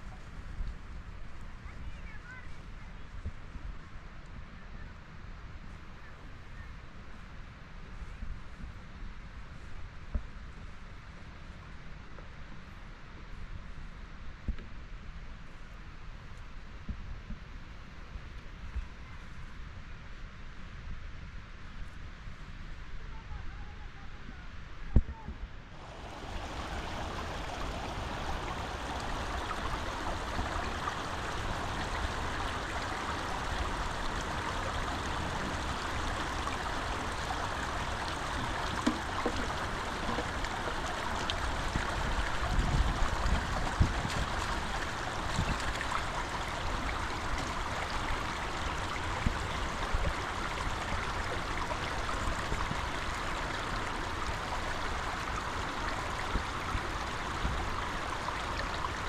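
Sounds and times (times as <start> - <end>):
running water flowing: 25.8 - 59.0.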